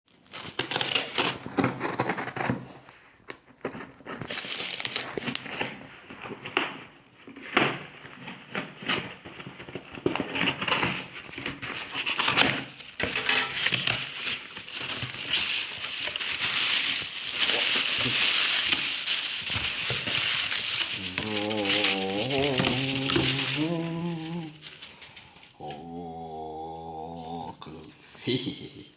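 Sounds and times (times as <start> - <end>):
plastic and cardboard crinkling: 0.1 - 25.8
clicks and crackles: 12.1 - 25.7.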